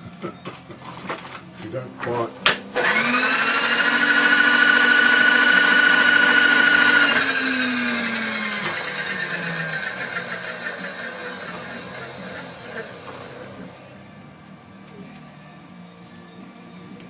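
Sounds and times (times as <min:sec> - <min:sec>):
electric motor running: 0:02.4 - 0:14.2.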